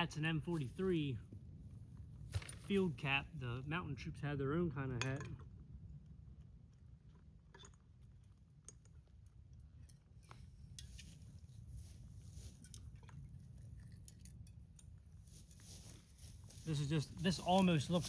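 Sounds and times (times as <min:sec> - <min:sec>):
low steady rumble: 0:00.0 - 0:18.0
small clicks and rustles: 0:05.4 - 0:18.0.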